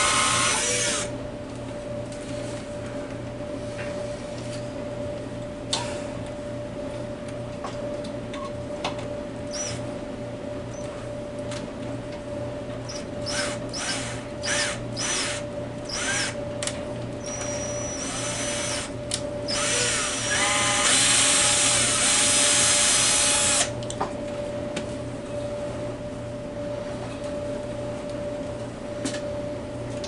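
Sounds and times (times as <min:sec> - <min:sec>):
power drill motor whining: 0:00.0 - 0:01.1, 0:09.5 - 0:09.8, 0:12.9 - 0:16.4, 0:17.2 - 0:18.9, 0:19.5 - 0:23.7.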